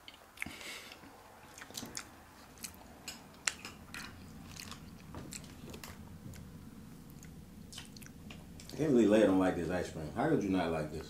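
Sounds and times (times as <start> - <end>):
people chewing soft food: 0.0 - 8.9
wet mouth clicks and smacks: 7.2 - 8.8.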